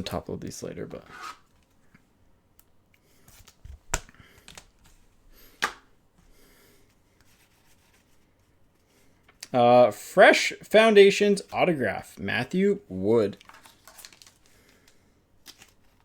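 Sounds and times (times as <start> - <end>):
cards rubbing and shuffling: 1.0 - 1.6.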